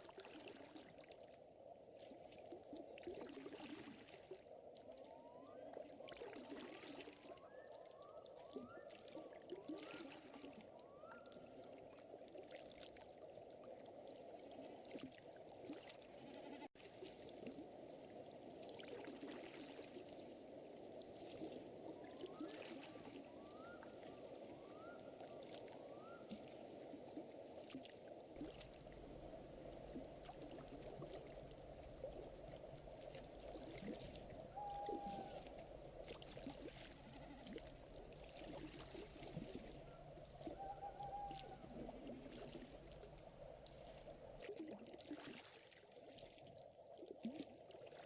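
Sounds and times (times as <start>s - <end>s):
low water-like hiss: 16.3s - 47.6s.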